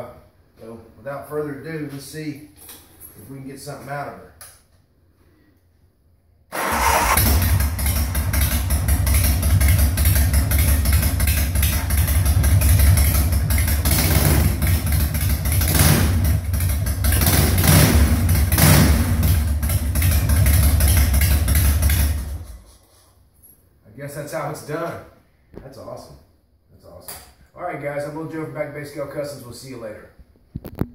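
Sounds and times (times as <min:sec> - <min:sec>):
engine revving: 0:06.5 - 0:10.6, 0:13.8 - 0:14.8, 0:15.5 - 0:22.5
motorcycle engine idling roughly: 0:06.7 - 0:22.5.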